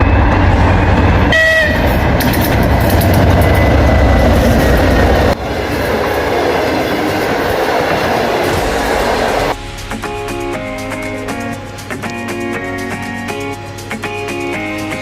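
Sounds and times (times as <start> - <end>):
train wheels rumbling on rails: 0.0 - 13.5
clicking over rail joints: 2.0 - 5.3.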